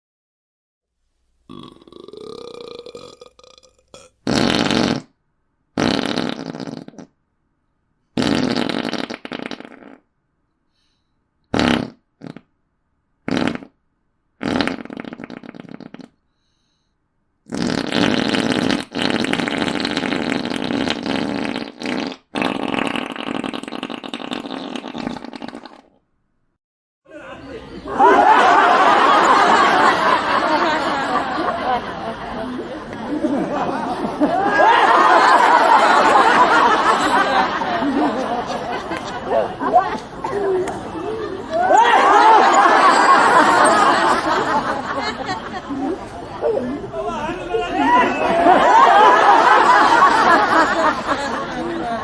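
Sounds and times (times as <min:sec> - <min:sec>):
person burping: 0:01.5 - 0:04.6
farts: 0:04.2 - 0:05.2, 0:05.8 - 0:07.1, 0:08.2 - 0:10.0, 0:11.5 - 0:12.5, 0:13.3 - 0:13.8, 0:14.4 - 0:16.2, 0:17.5 - 0:26.0.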